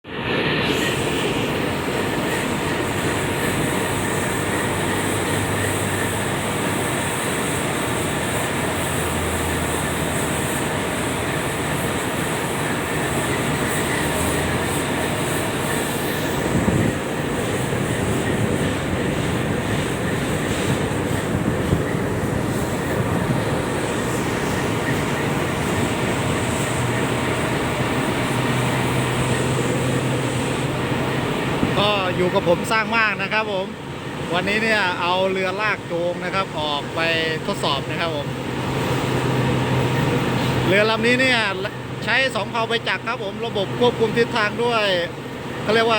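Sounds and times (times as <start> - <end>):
diesel engines droning: 0.0 - 45.9.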